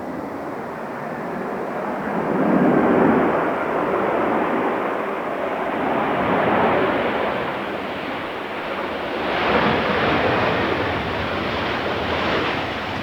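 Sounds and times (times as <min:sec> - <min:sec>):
jet engine noise: 0:00.0 - 0:13.0.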